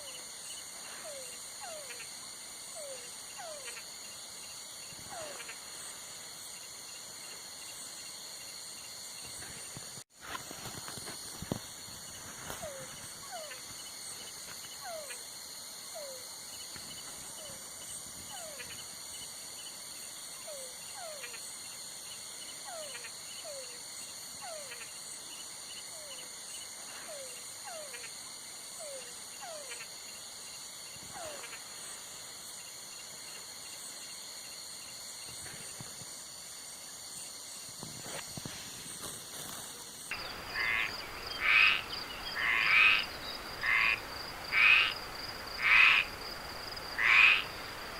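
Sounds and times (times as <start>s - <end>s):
high-pitched insect trill: 0.0s - 47.9s
frog croaking: 5.1s - 5.8s, 40.1s - 47.9s.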